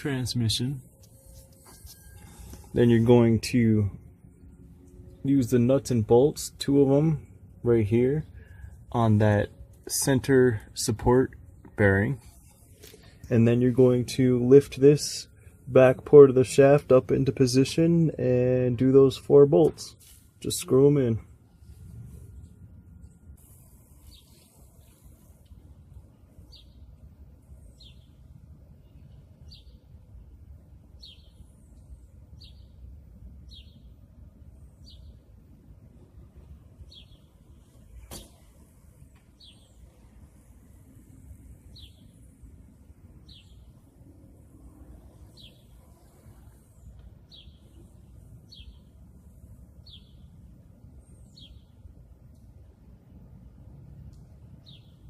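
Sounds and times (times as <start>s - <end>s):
low steady rumble: 0.0s - 55.0s
small bird chirping: 31.0s - 32.8s, 41.7s - 42.3s, 45.3s - 49.0s, 49.8s - 50.4s.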